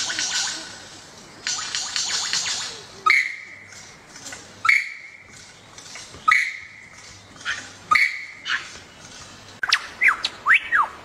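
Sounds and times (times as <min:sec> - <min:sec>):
bird whistled call: 0:03.1 - 0:03.4, 0:04.6 - 0:05.1, 0:06.3 - 0:06.8, 0:07.9 - 0:08.4, 0:09.6 - 0:11.0.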